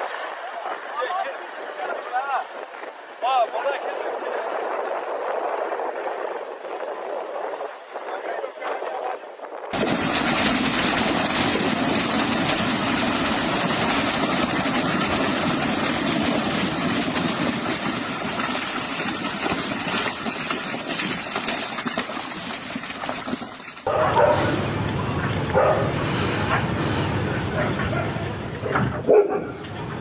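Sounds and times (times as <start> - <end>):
dog barking: 23.9 - 30.0
loud rushing noise: 23.9 - 30.0.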